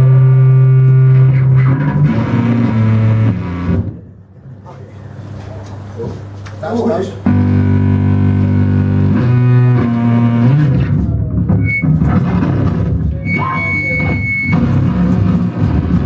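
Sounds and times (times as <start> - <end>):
rough noisy texture: 6.2 - 16.0
low droning tone: 7.3 - 16.0
thin piercing high tone: 13.2 - 14.6.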